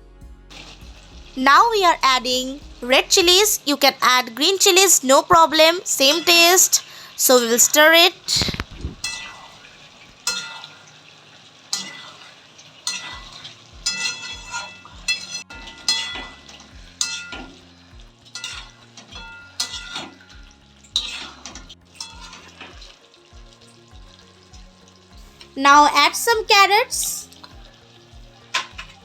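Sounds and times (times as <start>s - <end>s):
food frying sizzle: 0.2s - 29.0s
spoon scraping a pan: 5.9s - 7.7s, 8.3s - 11.0s, 11.7s - 23.0s, 28.5s - 29.0s.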